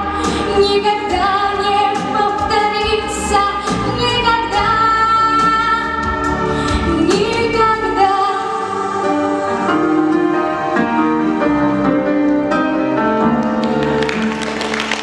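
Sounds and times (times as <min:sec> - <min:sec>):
woman singing ballad: 0:00.0 - 0:09.9
instrumental accompaniment: 0:00.0 - 0:15.0.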